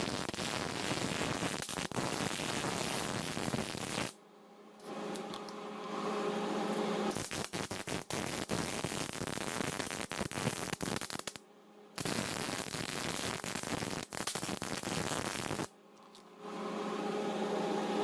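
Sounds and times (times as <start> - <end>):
welder crackling: 0.0 - 4.2, 7.1 - 11.4, 12.0 - 15.7
steady hum: 4.2 - 8.1, 15.7 - 18.0.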